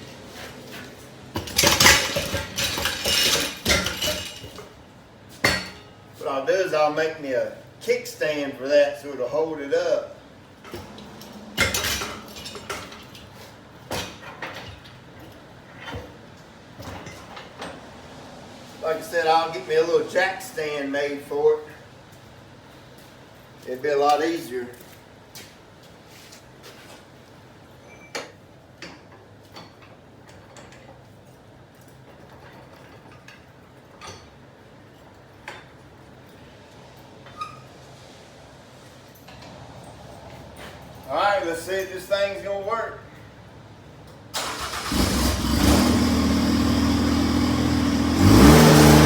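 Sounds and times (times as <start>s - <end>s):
metal parts clanking: 1.4s - 4.7s, 10.7s - 13.3s.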